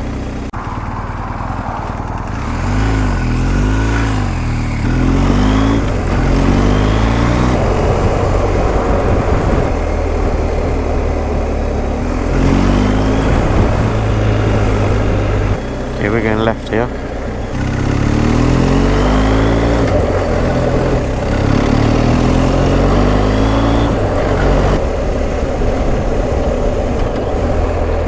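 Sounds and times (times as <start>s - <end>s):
motorcycle engine revving: 0.0s - 28.0s
wind noise: 0.9s - 28.0s.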